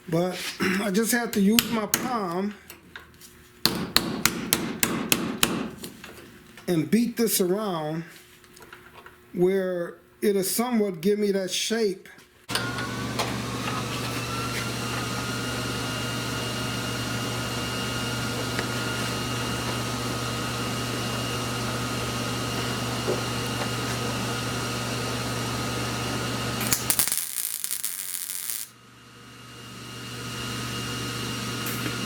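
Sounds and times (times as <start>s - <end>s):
power tool humming and whining: 12.5s - 28.7s
harsh hissing burst: 26.6s - 28.7s.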